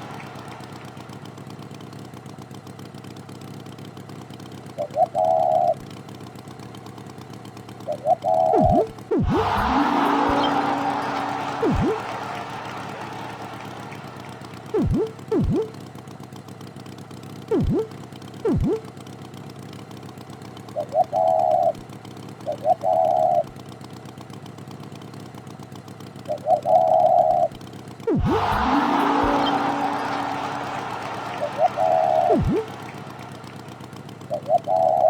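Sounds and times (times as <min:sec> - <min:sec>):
cartoon swooping sounds: 0:08.4 - 0:12.3, 0:14.6 - 0:15.7, 0:17.5 - 0:18.8, 0:28.1 - 0:33.8
cartoon horn honks: 0:08.6 - 0:15.7, 0:17.5 - 0:17.9, 0:18.5 - 0:18.8, 0:28.1 - 0:34.2.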